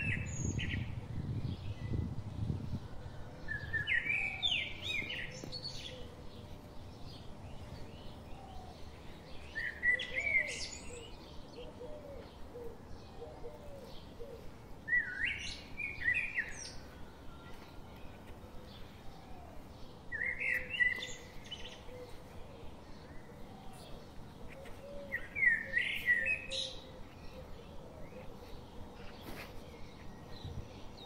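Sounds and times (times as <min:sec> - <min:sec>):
birds chirping loudly: 0:00.0 - 0:31.0
faint lower bird calls: 0:07.8 - 0:31.0.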